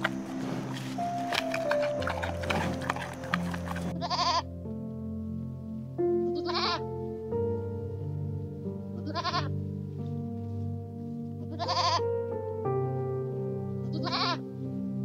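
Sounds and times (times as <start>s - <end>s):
soft background music: 0.0s - 15.0s
goat bleating: 3.7s - 4.5s, 6.4s - 6.8s, 9.0s - 9.5s, 11.5s - 12.0s, 14.0s - 14.4s.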